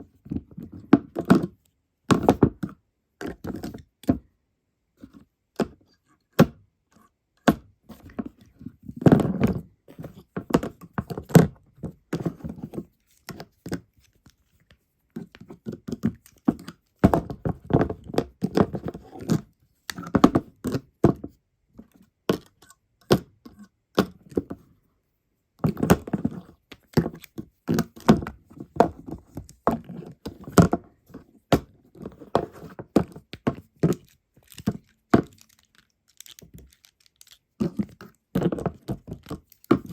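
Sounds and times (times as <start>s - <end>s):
insects knocking and scraping: 32.9s - 39.9s.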